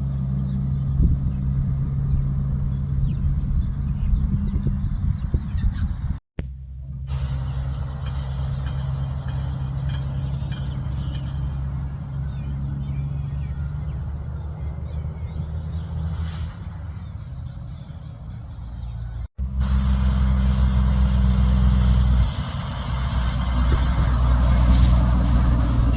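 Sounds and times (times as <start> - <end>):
road noise: 0.0 - 25.9
truck diesel engine running: 5.2 - 25.9.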